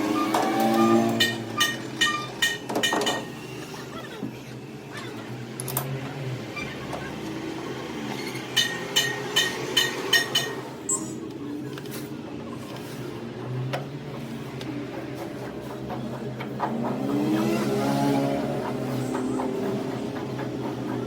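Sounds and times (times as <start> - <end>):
metal-on-metal ringing taps: 1.2 - 3.3, 8.6 - 11.2.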